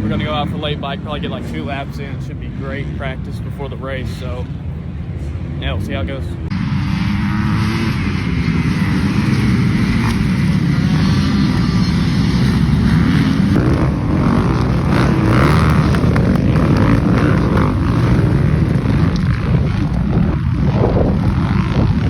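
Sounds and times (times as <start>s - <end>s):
dirt bike engines running: 0.0s - 22.0s.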